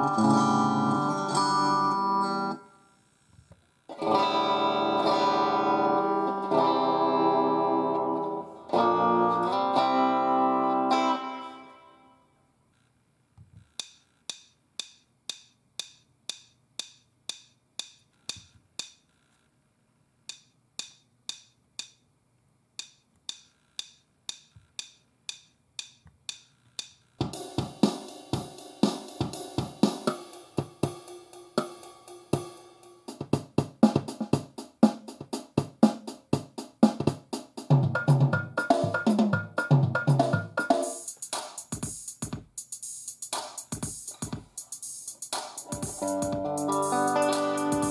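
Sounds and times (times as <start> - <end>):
drum machine beat: 13.6 - 19.1, 20.3 - 22.1, 22.7 - 47.9.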